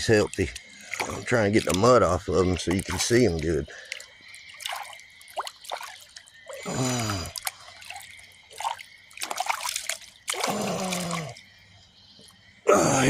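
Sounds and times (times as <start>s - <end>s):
water splashing and dripping: 0.0s - 13.0s
man grunting: 12.7s - 13.0s.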